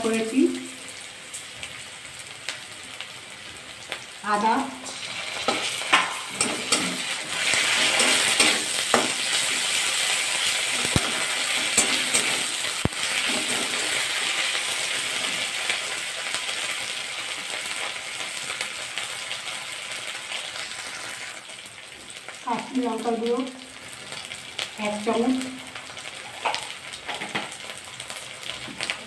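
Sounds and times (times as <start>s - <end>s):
vegetables sizzling in hot oil: 0.0s - 29.0s
spatula scraping metal pan: 4.9s - 9.6s.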